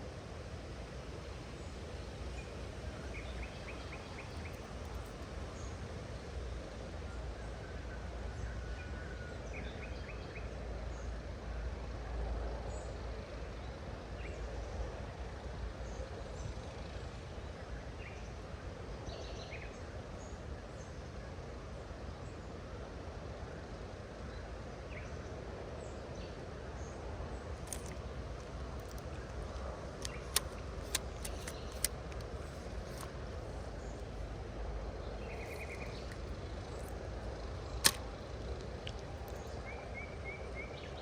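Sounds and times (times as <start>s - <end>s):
sharp clicks: 27.6s - 34.4s, 35.2s - 39.6s
faint bird chirps: 28.8s - 41.0s.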